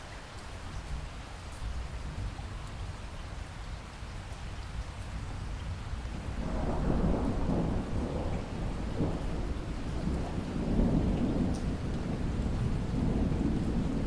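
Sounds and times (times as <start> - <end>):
steady rain: 0.0 - 14.0
rolling thunder: 6.2 - 14.0.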